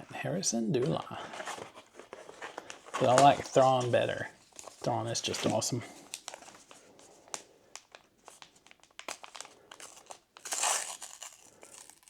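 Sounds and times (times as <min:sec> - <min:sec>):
foil wrapper crinkling: 0:00.9 - 0:12.0
wrapper tearing open: 0:07.8 - 0:12.0.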